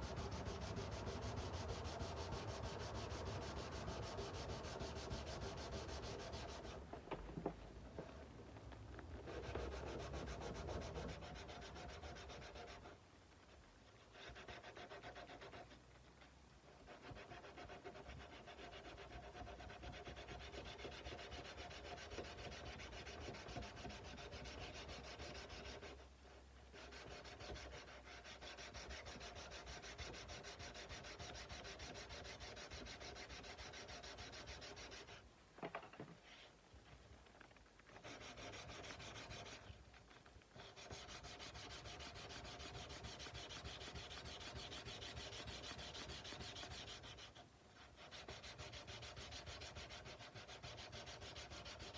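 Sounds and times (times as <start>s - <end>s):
sandpaper rubbing steel blade: 0.0s - 6.8s, 26.8s - 35.2s, 38.0s - 39.8s, 40.6s - 51.9s.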